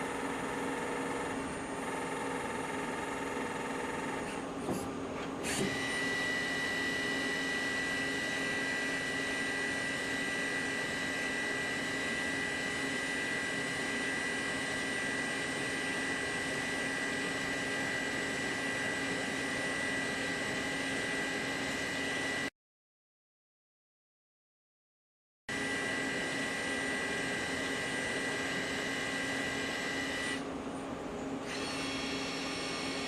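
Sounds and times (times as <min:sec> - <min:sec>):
lathe mechanical whine: 0:00.0 - 0:22.5, 0:25.5 - 0:30.6, 0:31.3 - 0:33.0.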